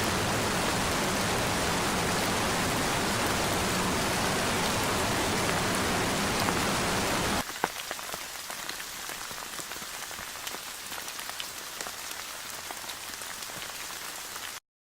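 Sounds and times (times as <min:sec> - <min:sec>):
heavy rain downpour: 0:00.0 - 0:14.6
light rain drops ticking: 0:07.4 - 0:14.6.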